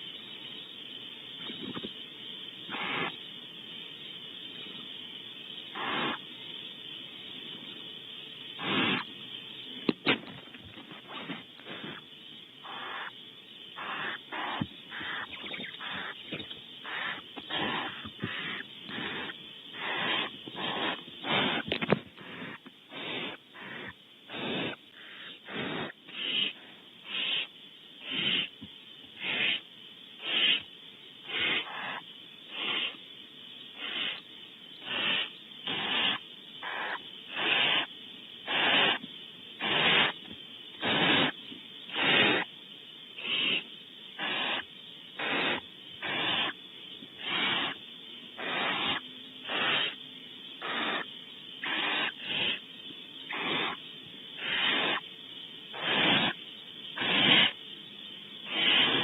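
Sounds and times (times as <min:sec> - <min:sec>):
owlets rasping begging calls: 0:02.7 - 0:03.2, 0:05.7 - 0:06.2, 0:12.6 - 0:13.2, 0:13.8 - 0:21.6, 0:22.2 - 0:28.5, 0:31.3 - 0:32.0, 0:34.8 - 0:37.9, 0:50.6 - 0:52.6.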